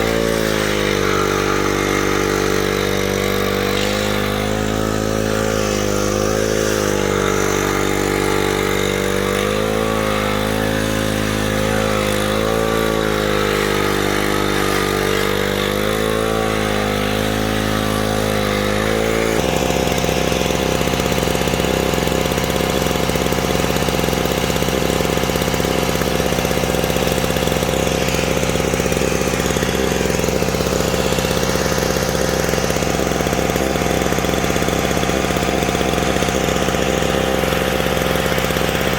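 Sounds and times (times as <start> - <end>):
steady engine sound: 0.0 - 38.9
engine idling: 17.0 - 38.9.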